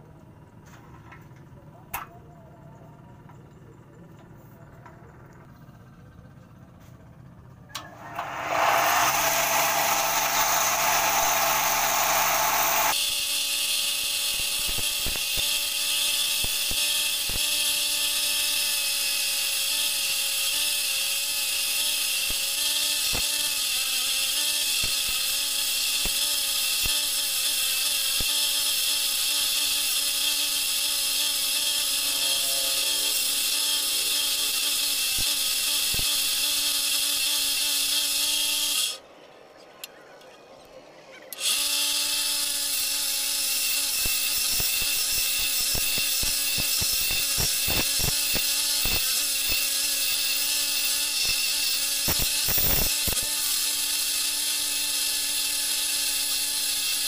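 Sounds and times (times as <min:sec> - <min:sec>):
lathe motor hum: 0:07.8 - 0:13.0, 0:29.1 - 0:39.0
chisel hissing on spinning wood: 0:08.0 - 0:39.0, 0:41.4 - 0:57.0.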